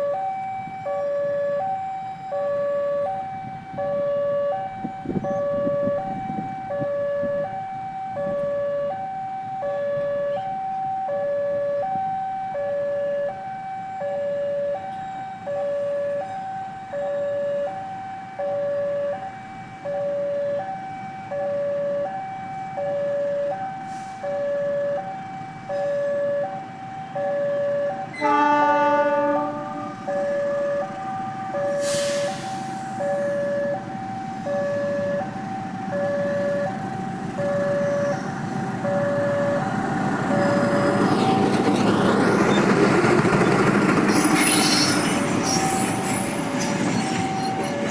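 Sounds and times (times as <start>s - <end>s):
two-tone crossing alarm: 0.0s - 41.6s, 44.8s - 47.9s
train horn: 28.1s - 30.3s
short hiss: 31.8s - 32.9s.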